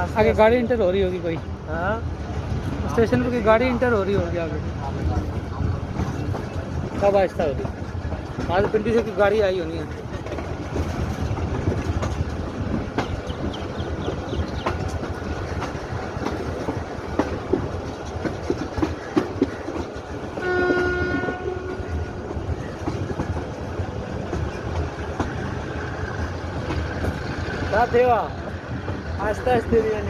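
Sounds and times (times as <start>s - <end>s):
train rumbling on track: 0.0s - 30.0s
wheels clicking over rail joints: 0.0s - 30.0s
train horn: 20.4s - 22.3s.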